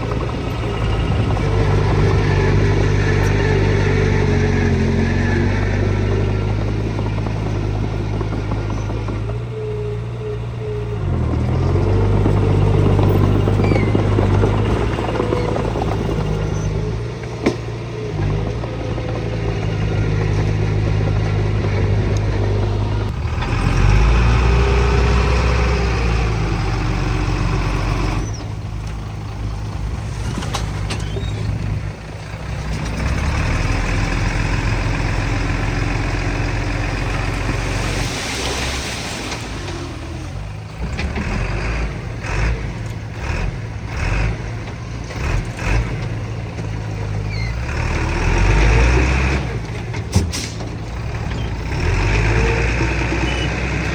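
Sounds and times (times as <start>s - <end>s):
diesel engines running: 0.0s - 53.9s.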